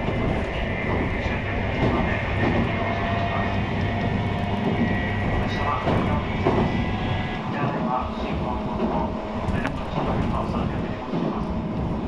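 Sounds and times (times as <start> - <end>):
train wheels rumbling on rail: 0.0 - 12.0
train whining tones: 0.0 - 12.0.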